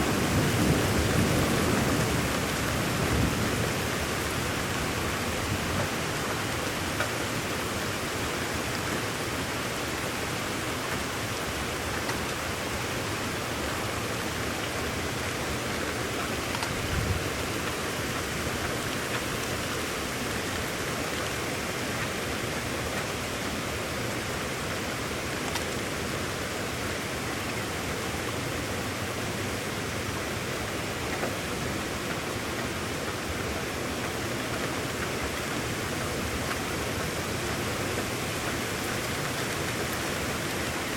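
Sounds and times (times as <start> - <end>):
rain hissing: 15.5 - 21.1
low thump: 16.7 - 17.4.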